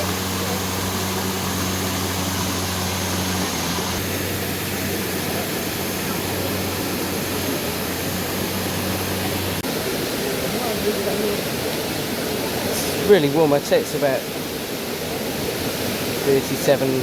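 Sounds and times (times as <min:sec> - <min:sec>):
low steady hum: 0:00.0 - 0:13.1
fast-flowing stream: 0:00.0 - 0:17.0
waterfall rushing: 0:00.0 - 0:17.0.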